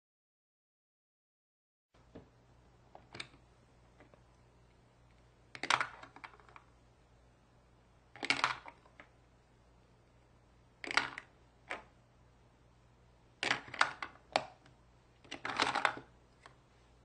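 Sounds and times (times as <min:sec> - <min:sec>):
plastic toy clicks and rattles: 0:05.6 - 0:06.7, 0:08.2 - 0:09.1, 0:10.8 - 0:11.9, 0:13.4 - 0:14.5, 0:15.2 - 0:16.1.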